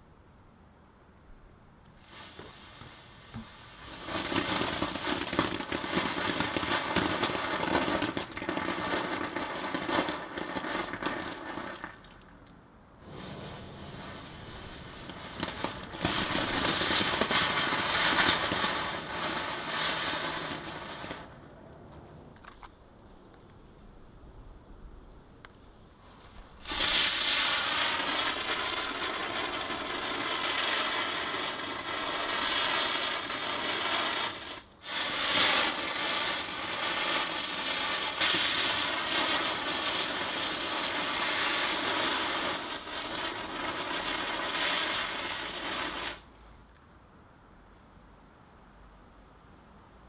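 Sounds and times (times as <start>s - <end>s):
firework fountain hissing: 2.0s - 12.3s, 13.0s - 21.4s, 26.1s - 46.3s.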